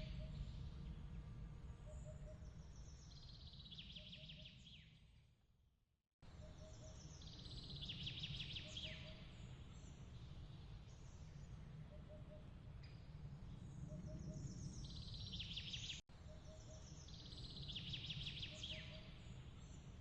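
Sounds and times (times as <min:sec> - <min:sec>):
low steady rumble: 0:00.0 - 0:03.8
songbird trilling: 0:17.6 - 0:19.2.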